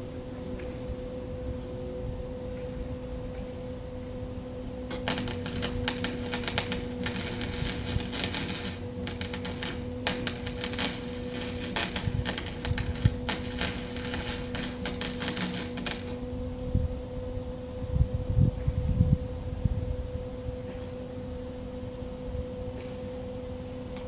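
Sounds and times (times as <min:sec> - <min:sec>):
steady hum: 0:02.3 - 0:18.5
arc welding crackle: 0:04.9 - 0:16.4.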